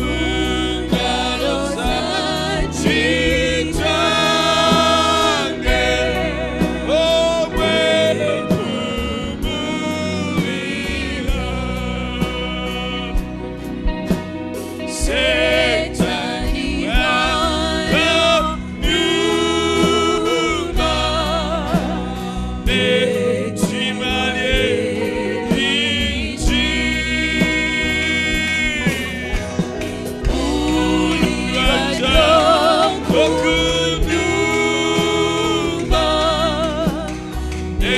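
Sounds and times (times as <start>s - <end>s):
bass line: 0.0s - 37.9s
drum beats: 0.0s - 37.9s
gospel singing: 0.0s - 37.9s.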